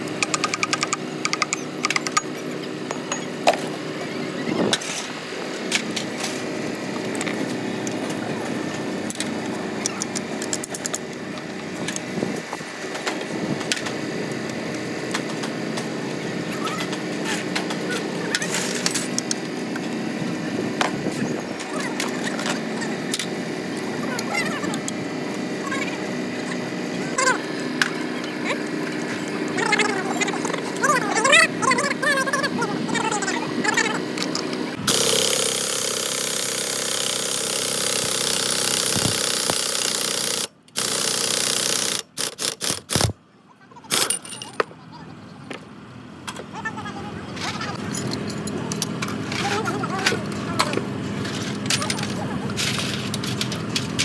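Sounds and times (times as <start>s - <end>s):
power tool hammering rattle: 0.0s - 12.1s, 12.9s - 43.2s
engine running: 0.0s - 54.0s.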